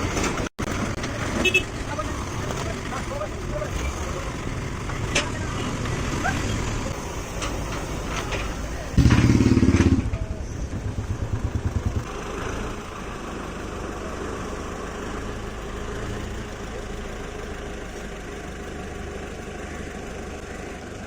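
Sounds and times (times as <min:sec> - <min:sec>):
quieter engine rumble: 0:00.0 - 0:21.0
loud engine fast beat: 0:08.8 - 0:21.0.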